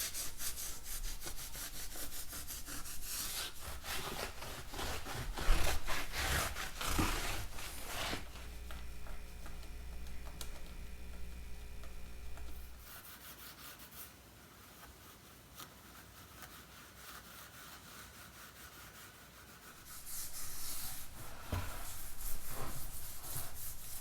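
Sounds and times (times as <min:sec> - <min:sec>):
scrubbing metal wheel rim: 0:00.0 - 0:10.0, 0:19.8 - 0:24.0
low steady hum: 0:00.0 - 0:12.9, 0:19.8 - 0:24.0.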